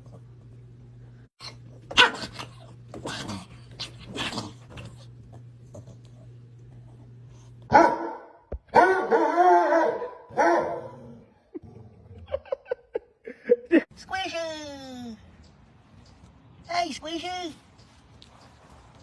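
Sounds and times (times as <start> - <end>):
low steady hum: 0.0 - 19.0
dog whining barks: 7.7 - 11.2.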